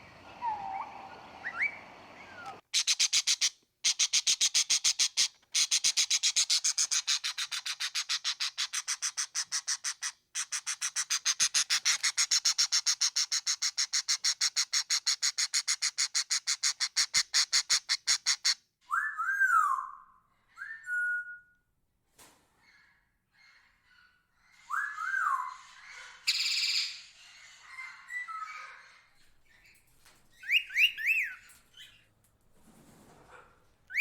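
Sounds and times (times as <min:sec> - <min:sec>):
bird whistling: 0:00.0 - 0:03.0, 0:30.4 - 0:31.4
bird chattering: 0:00.0 - 0:18.6.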